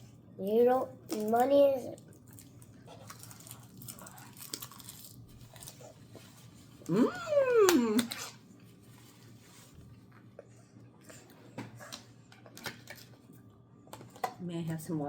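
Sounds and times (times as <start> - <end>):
person humming mmm: 6.9 - 8.3.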